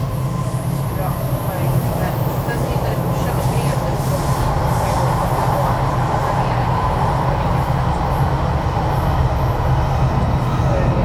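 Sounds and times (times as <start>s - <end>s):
train car rumble and hum: 0.0s - 11.0s.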